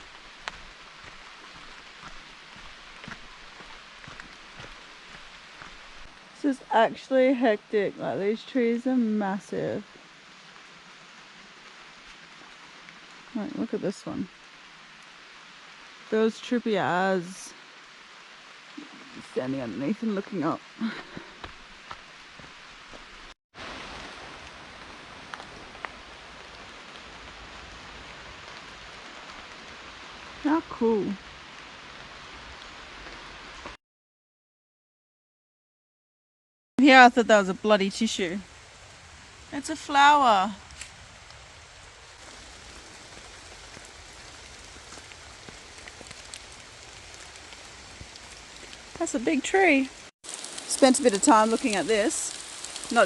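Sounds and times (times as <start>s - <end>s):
water drips landing close: 0.0s - 6.2s, 50.3s - 53.0s
rain falling on foliage: 0.0s - 33.8s, 36.8s - 53.0s.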